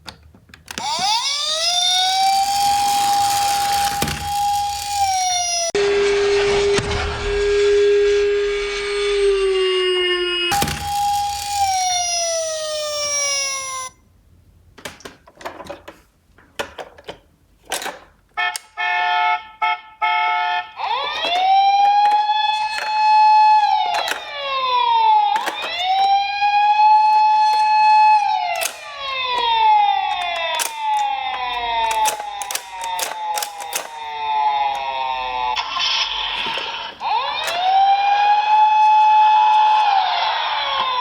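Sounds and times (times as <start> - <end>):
electronic toy sirens: 0.7 - 5.9, 8.8 - 14.0, 18.4 - 41.0
toy cars clattering on cardboard: 21.0 - 24.4, 25.3 - 26.2.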